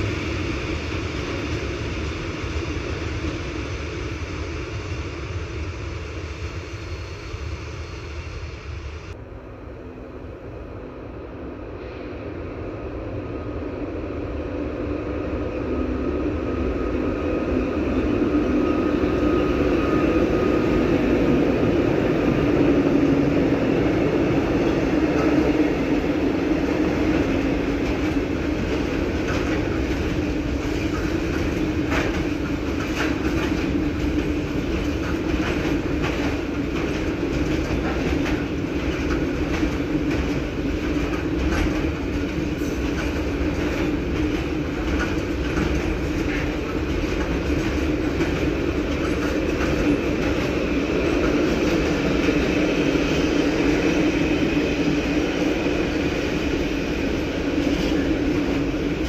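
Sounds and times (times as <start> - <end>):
train passing: 0.0 - 59.0
wheels clicking over rail joints: 27.1 - 52.5.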